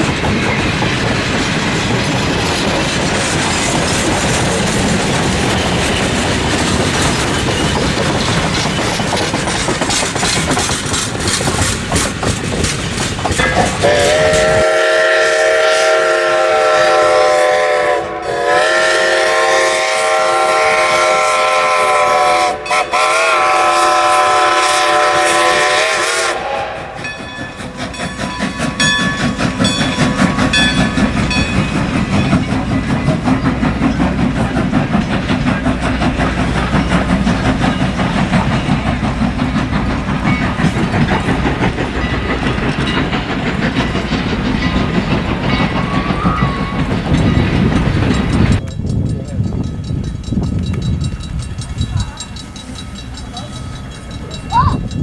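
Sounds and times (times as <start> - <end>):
wheels clattering on rails: 0.0 - 15.6, 26.8 - 55.0
train rumbling past: 0.0 - 55.0
steam locomotive whistle: 13.4 - 27.2, 44.8 - 48.4.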